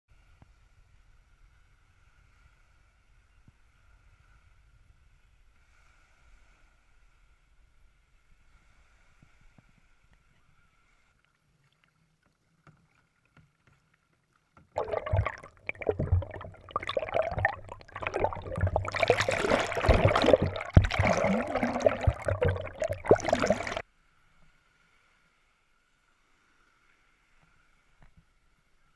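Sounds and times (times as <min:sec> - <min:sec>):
water splashing around kayak: 0:14.8 - 0:23.8.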